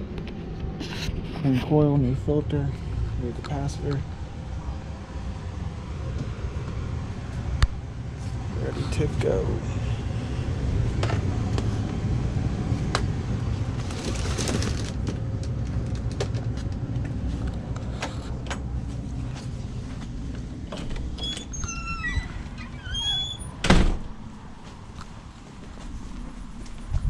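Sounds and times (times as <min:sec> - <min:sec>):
low machine rumble: 0:00.0 - 0:27.0.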